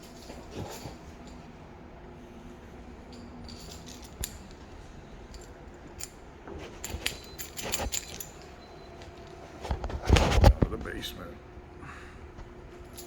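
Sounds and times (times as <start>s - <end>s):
keys jangling on a key ring: 0.0s - 1.5s, 3.0s - 4.6s, 6.8s - 9.3s.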